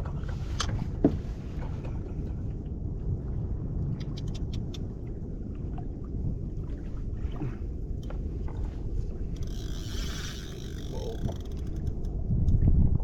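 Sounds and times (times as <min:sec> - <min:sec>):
water noise: 0:00.0 - 0:13.0
wind buffeting microphone: 0:00.0 - 0:13.0
faint clicks: 0:09.3 - 0:12.6.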